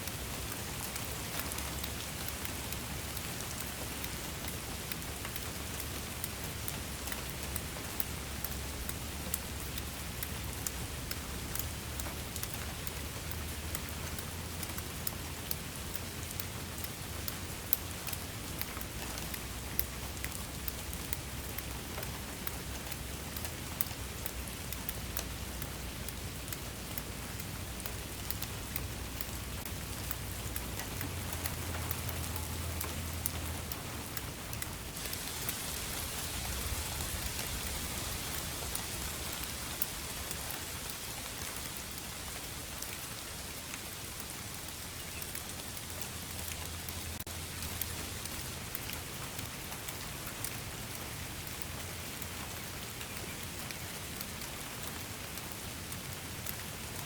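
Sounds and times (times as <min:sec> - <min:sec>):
drops ticking on a surface: 0:00.0 - 0:56.6
rain falling: 0:00.0 - 0:57.0.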